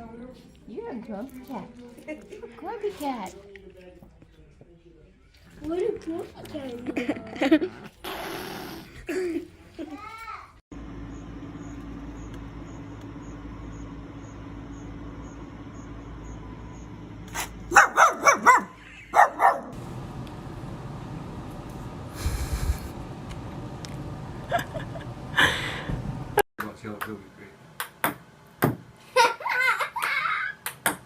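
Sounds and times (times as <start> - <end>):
dog barking: 17.7 - 19.8
low hum: 19.8 - 26.4.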